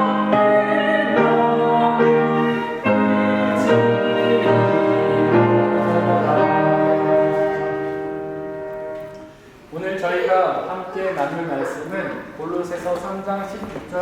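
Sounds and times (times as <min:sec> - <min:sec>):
piano hymn accompaniment: 0:00.0 - 0:09.8.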